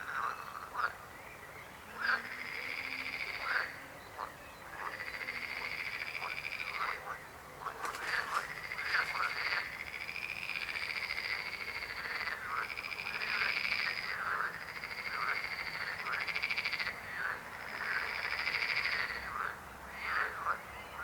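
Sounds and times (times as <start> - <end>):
frogs trilling: 1.9 - 21.0
short frog croaks: 4.8 - 20.4.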